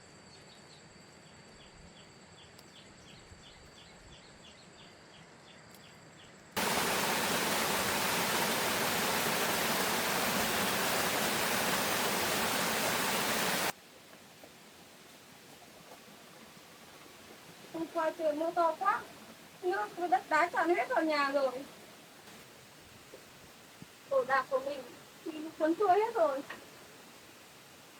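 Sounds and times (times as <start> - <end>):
heavy rain pouring: 6.6 - 13.8.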